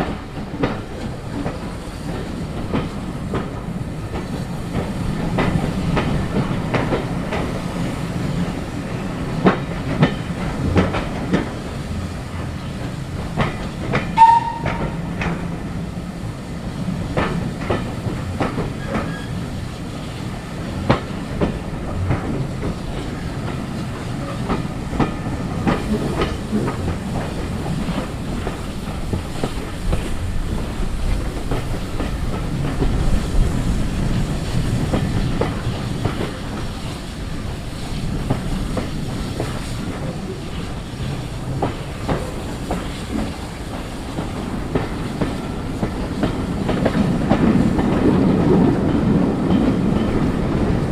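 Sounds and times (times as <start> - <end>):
train rumble: 0.0 - 50.9
train wheels clacking over joints: 0.0 - 50.9
brief high-pitched note: 14.2 - 14.8.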